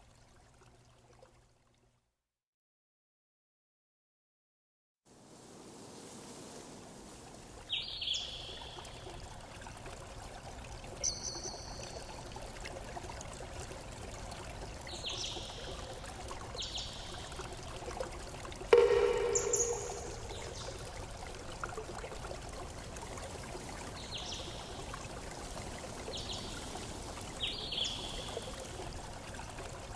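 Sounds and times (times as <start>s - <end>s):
stream trickling: 0.0s - 2.1s, 5.1s - 29.9s
low bird call: 18.7s - 20.9s
high bird chirps: 18.8s - 20.8s.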